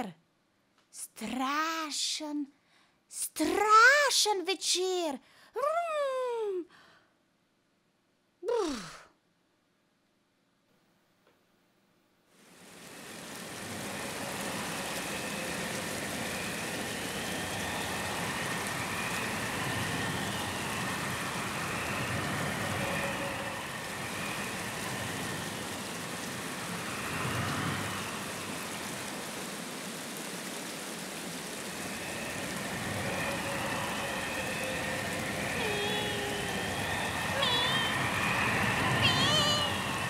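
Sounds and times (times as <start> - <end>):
rain rushing: 12.3 - 40.0
faint whistling glides: 12.9 - 29.1, 31.3 - 40.0.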